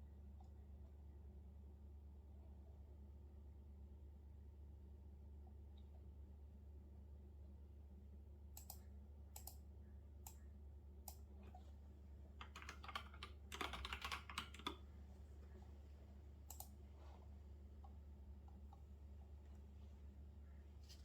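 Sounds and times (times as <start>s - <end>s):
faint low hum: 0.0s - 21.0s
typing on computer keyboard: 12.4s - 14.8s.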